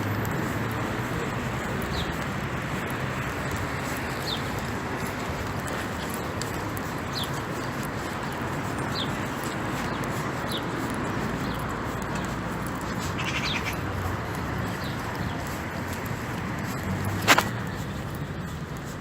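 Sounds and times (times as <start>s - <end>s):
bird chirping: 13.0s - 13.8s.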